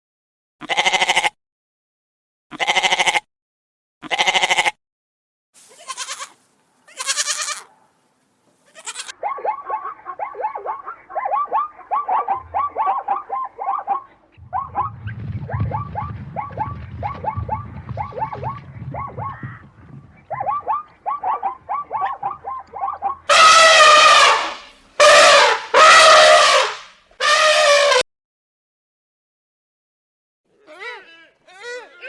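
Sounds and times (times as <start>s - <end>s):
harsh trumpet-like animal calls: 5.7s - 7.7s, 8.7s - 9.2s, 20.3s - 28.0s
low rumble: 14.4s - 23.3s.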